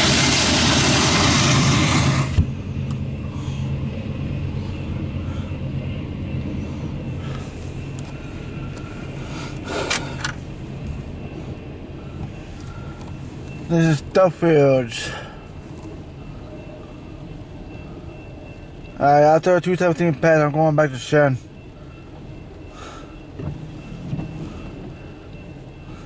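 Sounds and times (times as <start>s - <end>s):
loud rushing noise: 0.0s - 2.7s
freight train passing: 0.0s - 26.0s
muffled train rumble: 0.0s - 26.0s.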